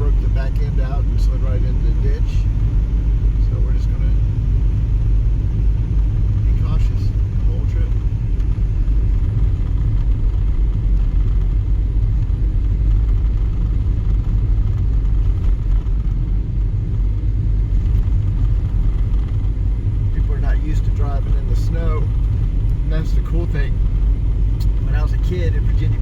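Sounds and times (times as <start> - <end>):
car cabin road and engine rumble: 0.0 - 26.0.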